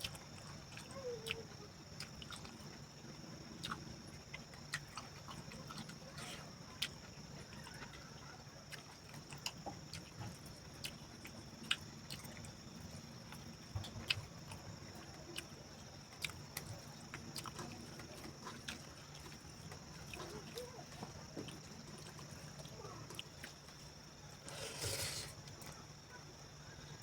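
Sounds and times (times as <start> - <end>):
crickets chirring: 0.0 - 27.0
person chewing: 2.0 - 2.8, 3.6 - 7.9, 8.7 - 12.5, 16.2 - 25.7.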